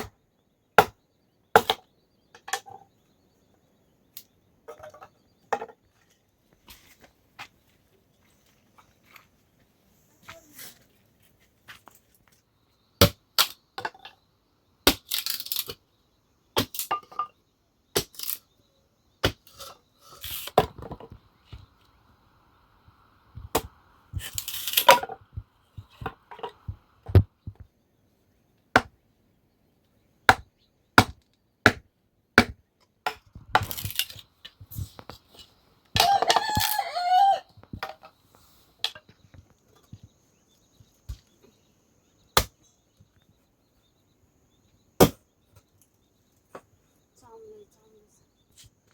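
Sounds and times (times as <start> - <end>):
rooster crowing: 36.0 - 37.6.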